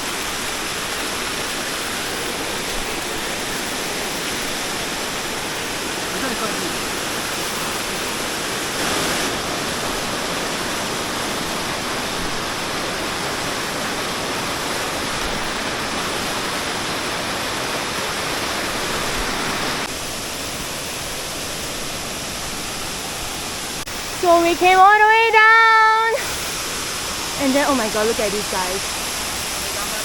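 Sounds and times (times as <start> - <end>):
waterfall roaring: 0.0 - 30.0.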